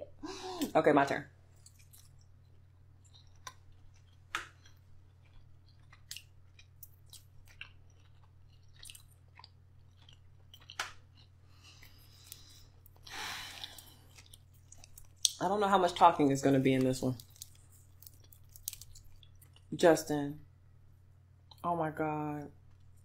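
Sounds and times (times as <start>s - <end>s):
chewing and lip smacks: 1.5s - 15.4s, 17.1s - 19.7s.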